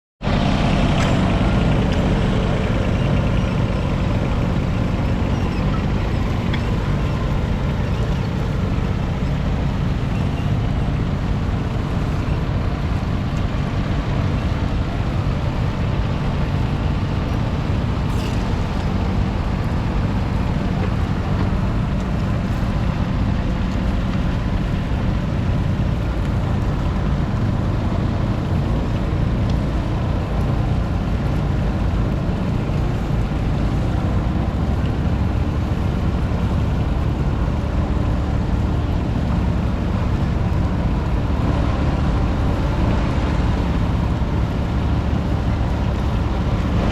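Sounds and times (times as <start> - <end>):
diesel tractor engine running: 0.2 - 46.9.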